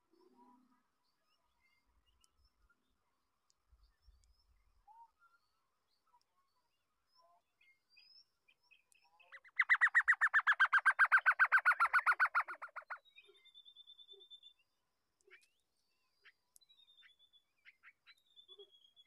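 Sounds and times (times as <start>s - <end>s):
bird chattering: 9.4s - 13.0s.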